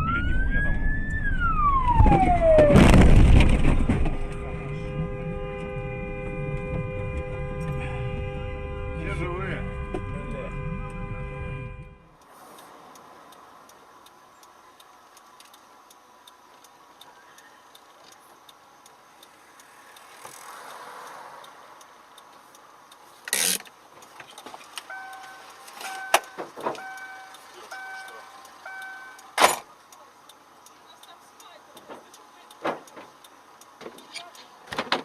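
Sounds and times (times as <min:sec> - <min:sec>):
loud crash of impact: 0:02.0 - 0:04.2
turn signal ticking: 0:04.2 - 0:11.4, 0:12.0 - 0:35.0
electronic beeping: 0:24.9 - 0:29.3.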